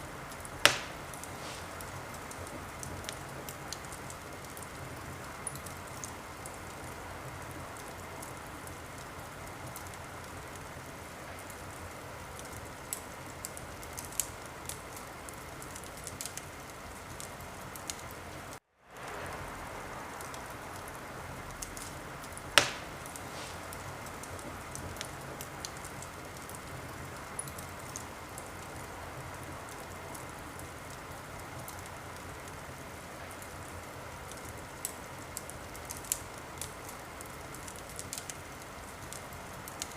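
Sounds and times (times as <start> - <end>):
fire crackling: 0.0 - 39.9
wood fire hissing: 0.0 - 39.9
loud fire pop: 0.6 - 1.8, 22.6 - 24.4.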